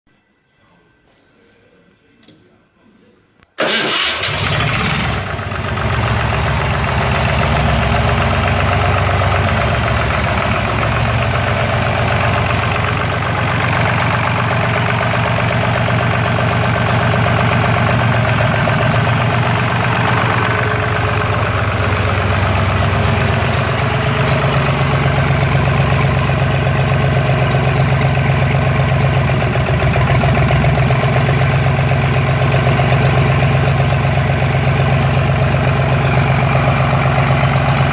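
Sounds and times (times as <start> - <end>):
diesel engine running: 3.6 - 37.9.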